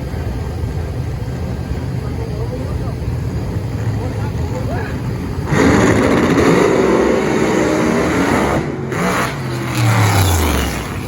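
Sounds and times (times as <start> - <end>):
racing car engine at high revs: 2.6 - 11.0.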